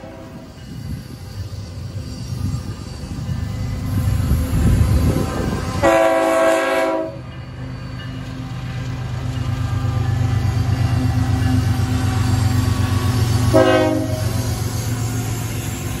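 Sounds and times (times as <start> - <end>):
locomotive horn blast: 5.7 - 7.2, 13.4 - 14.4.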